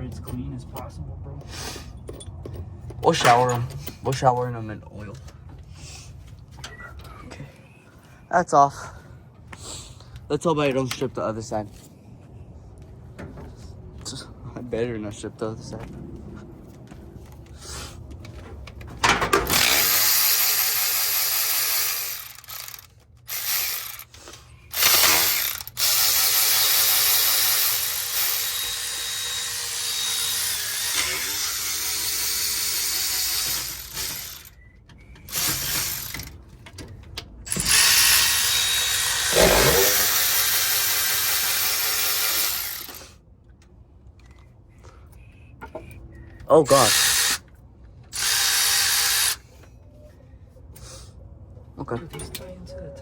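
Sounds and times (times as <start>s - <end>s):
cordless ratchet spinning bolts: 19.4s - 34.6s, 35.2s - 36.4s, 37.5s - 43.0s, 46.7s - 47.4s, 48.1s - 49.4s.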